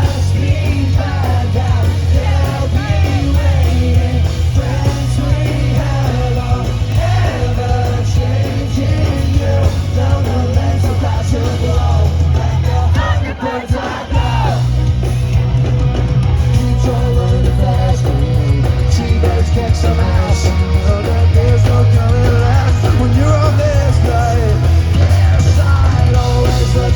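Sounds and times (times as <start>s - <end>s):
live pop-punk band: 0.0s - 26.9s
sung vocals: 0.0s - 26.9s.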